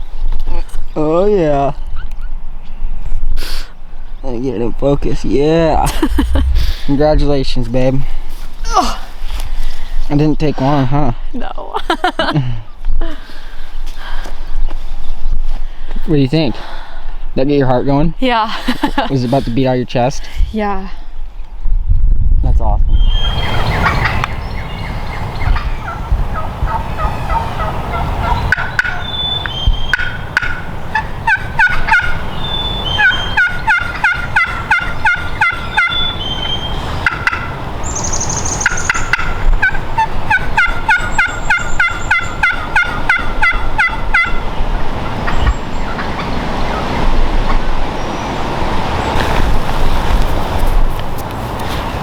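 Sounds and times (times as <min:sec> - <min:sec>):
turkey calling: 0:23.0 - 0:47.6.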